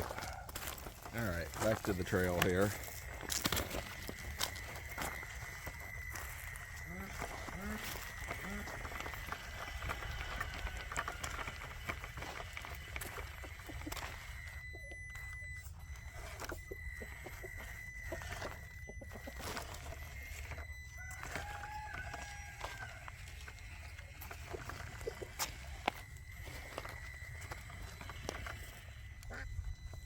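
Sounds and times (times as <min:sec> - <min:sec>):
toy car electric motor whine: 0:00.0 - 0:30.0.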